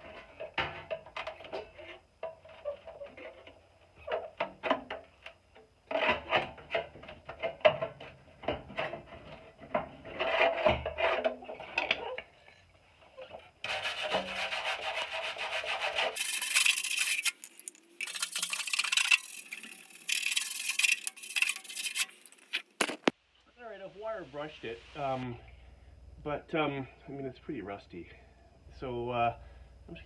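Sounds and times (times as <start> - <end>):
wire brush scraping metal: 13.7 - 23.1.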